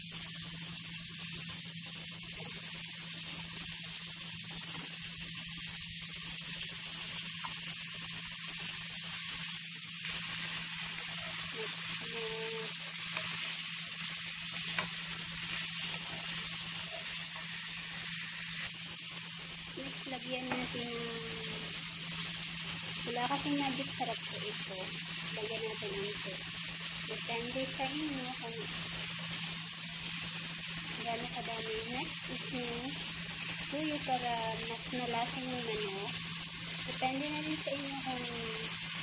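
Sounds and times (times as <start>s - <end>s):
chicken sizzling in hot oil: 0.0s - 39.0s
wooden spoon stirring: 10.6s - 18.1s.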